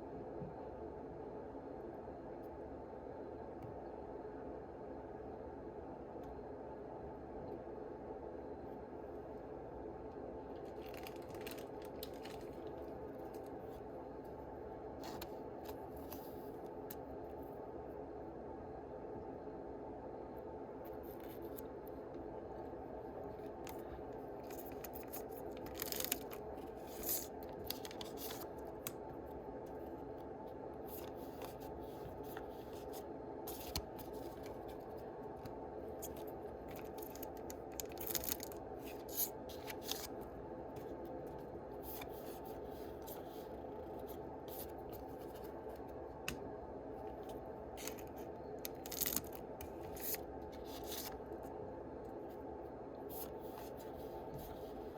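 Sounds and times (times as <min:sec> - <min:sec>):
steady low hum: 0:00.0 - 0:54.9
card packs rustling and tearing: 0:10.6 - 0:12.9, 0:24.5 - 0:28.9, 0:36.0 - 0:40.2, 0:47.8 - 0:51.2.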